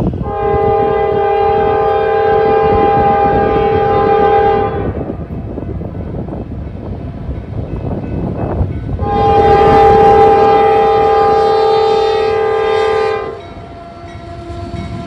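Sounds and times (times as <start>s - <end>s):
passing train rumbling: 0.0s - 15.0s
locomotive air horn blast: 0.2s - 5.2s, 9.0s - 15.0s.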